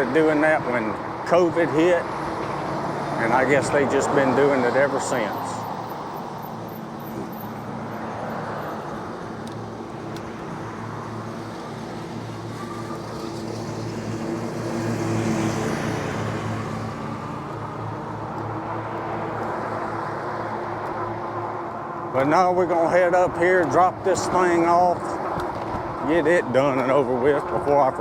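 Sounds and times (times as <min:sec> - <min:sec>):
road traffic humming: 0:00.0 - 0:28.0
vehicle passing close: 0:10.3 - 0:21.9.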